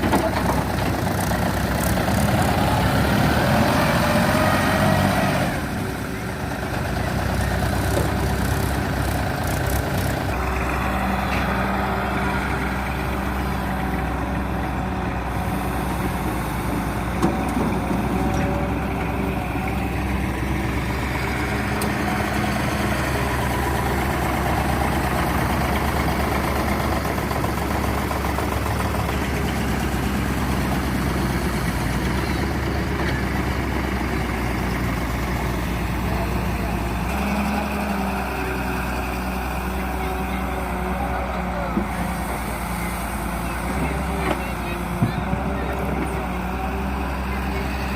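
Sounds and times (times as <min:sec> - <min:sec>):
diesel engines running: 0:00.0 - 0:47.9.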